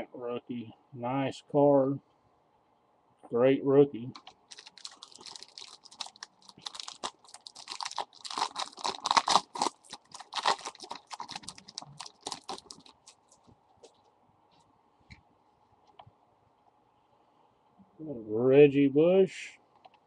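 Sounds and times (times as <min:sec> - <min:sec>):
foil wrapper crinkling: 0:04.1 - 0:13.5.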